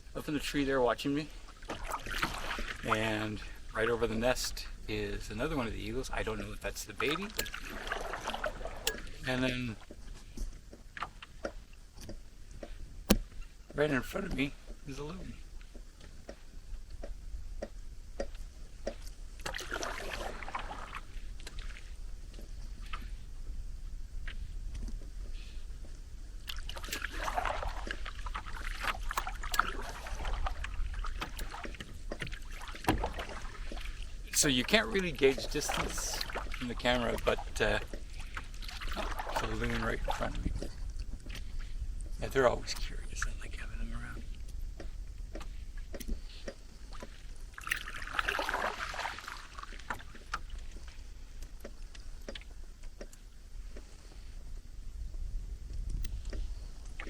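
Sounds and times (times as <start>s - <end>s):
paddle splashing in water: 0.3s - 54.5s
light clicks and knocks: 9.8s - 19.2s.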